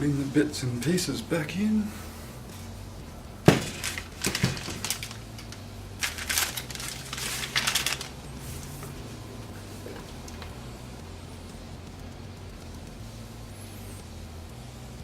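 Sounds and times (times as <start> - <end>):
steady low hum: 0.0 - 15.0
scraping and rustling: 3.5 - 10.5.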